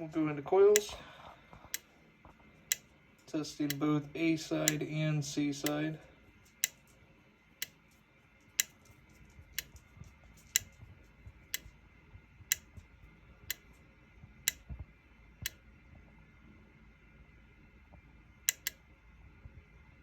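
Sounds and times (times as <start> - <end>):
solenoid clicks: 0.7 - 1.0, 3.6 - 4.9, 6.5 - 6.9, 9.6 - 10.8, 11.5 - 11.8, 12.5 - 13.8, 14.4 - 14.7, 18.5 - 18.8.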